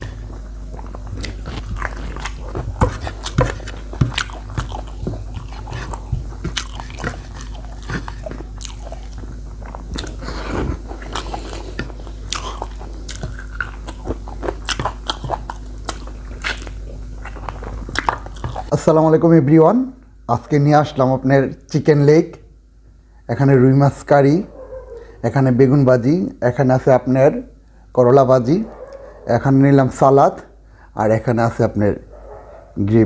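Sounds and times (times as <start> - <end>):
person chewing with crisp crunches: 0.0 - 18.7, 28.7 - 29.3.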